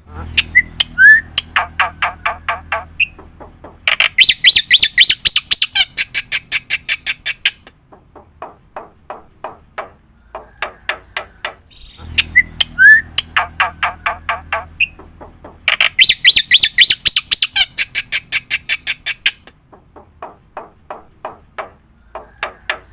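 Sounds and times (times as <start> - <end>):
short rising whistles: 0.3 - 1.4, 11.7 - 13.2.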